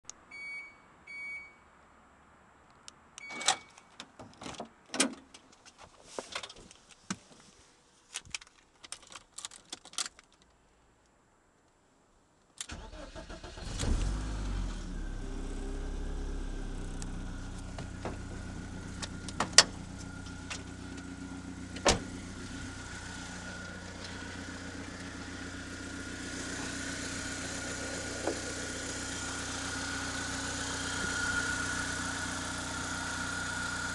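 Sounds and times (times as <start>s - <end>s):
short beeps: 0.3s - 1.7s
car engine starting and idling: 12.6s - 33.9s.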